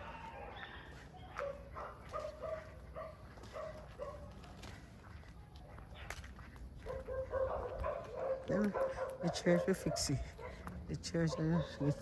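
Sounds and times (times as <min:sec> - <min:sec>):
distant dog barking: 0:00.0 - 0:04.4, 0:05.6 - 0:12.0.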